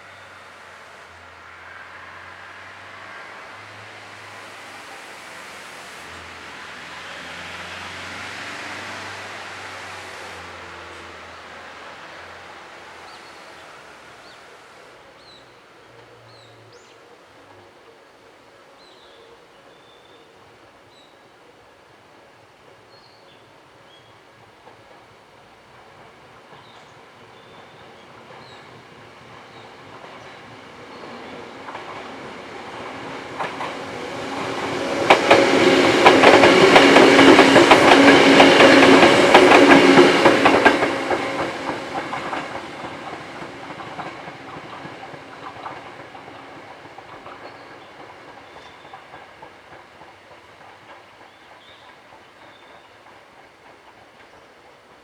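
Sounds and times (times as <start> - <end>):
electric train passing: 0.0 - 19.1, 20.3 - 55.0
wheels clicking over rail joints: 24.4 - 55.0.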